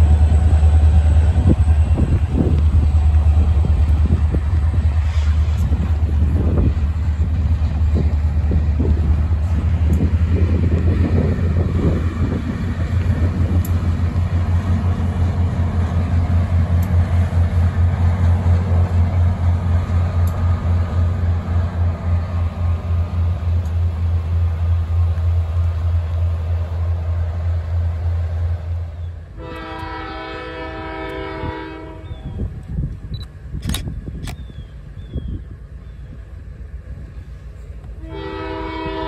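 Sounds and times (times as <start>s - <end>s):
train rumbling past: 0.0s - 39.0s
locomotive air horn: 29.3s - 32.3s, 38.0s - 39.0s.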